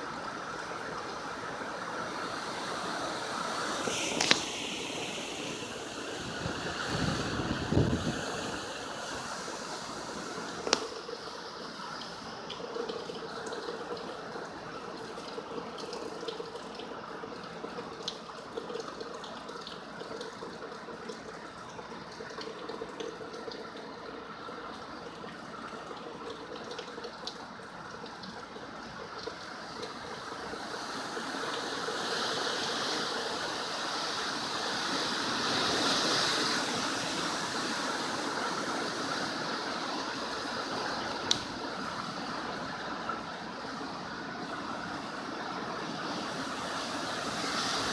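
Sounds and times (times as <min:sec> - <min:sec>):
heavy rain and wind: 0:00.0 - 0:15.8, 0:29.4 - 0:47.9.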